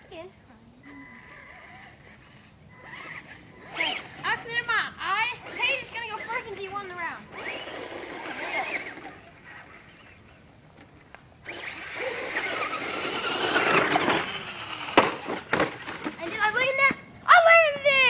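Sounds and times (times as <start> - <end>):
rc truck electric motor whine: 1.1 - 4.4, 5.1 - 10.5, 11.4 - 16.2
tyre noise: 5.4 - 17.1
rc truck landing knocks: 13.4 - 16.2.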